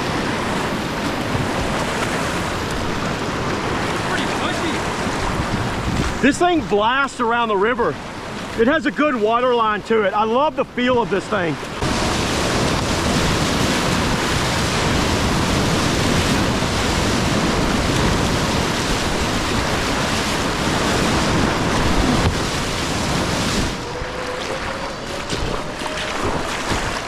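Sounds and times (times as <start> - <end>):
wind noise on microphone: 0.0 - 6.9, 11.8 - 27.0
whitewater rapids roaring: 0.0 - 27.0.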